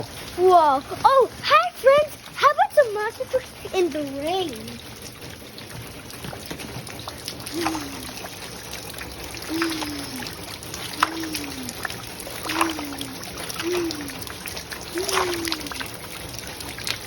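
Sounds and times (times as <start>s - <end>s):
water trickling and splashing: 0.0s - 17.0s
person making falling sound: 14.9s - 15.8s.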